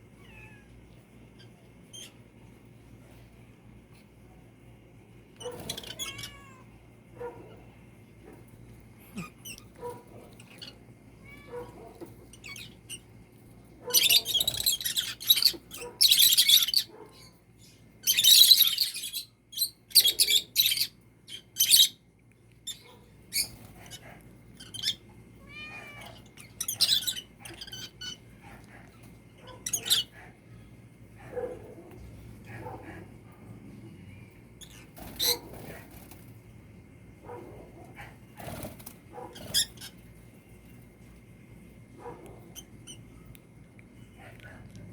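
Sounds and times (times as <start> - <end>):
kitten meowing: 6.0 - 6.6, 11.2 - 11.7, 25.4 - 26.2
birds chirping: 9.0 - 28.4, 29.0 - 30.2, 34.1 - 36.2, 38.1 - 40.1.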